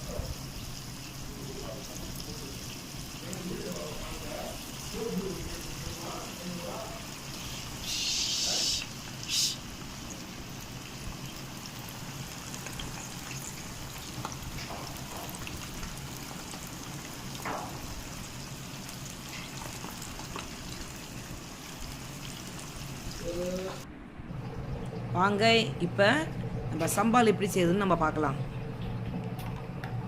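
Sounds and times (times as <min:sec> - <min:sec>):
chicken deep-frying in oil: 0:00.0 - 0:23.8.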